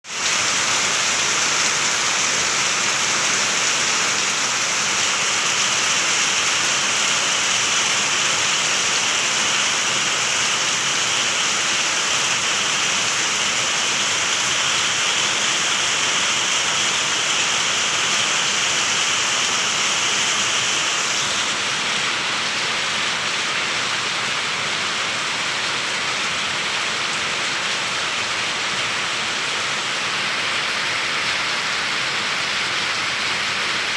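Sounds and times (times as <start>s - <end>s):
rushing water hiss: 0.1s - 33.9s.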